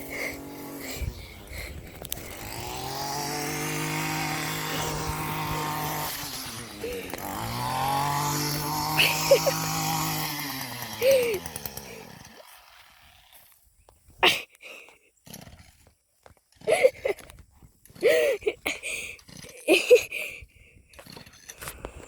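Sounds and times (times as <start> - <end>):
string trimmer engine revving: 0.0 - 13.6, 16.5 - 17.3, 17.9 - 20.4.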